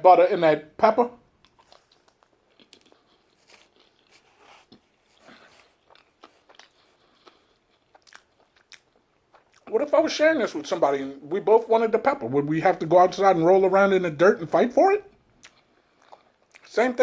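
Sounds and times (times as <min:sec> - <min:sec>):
close-up chewing with mouth clicks: 0:01.4 - 0:09.7, 0:15.4 - 0:16.7.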